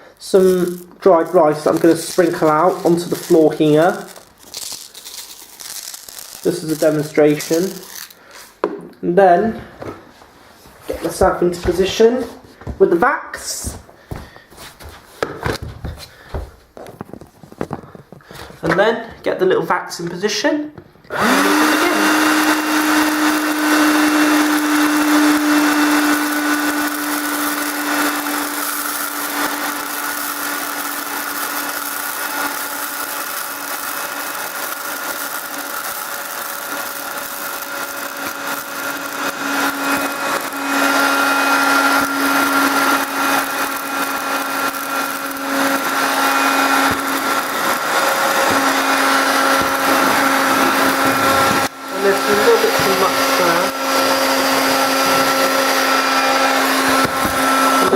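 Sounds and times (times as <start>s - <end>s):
rice grains rattling: 0.2s - 8.6s
handheld vacuum cleaner whine: 21.1s - 57.9s.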